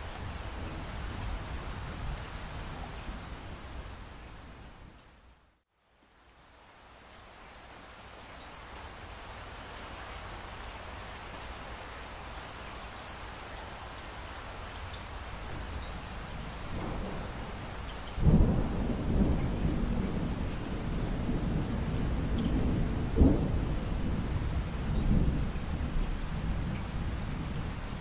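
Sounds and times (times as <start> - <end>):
steady rain: 0.0 - 28.0
thunder rumbling: 16.7 - 28.0.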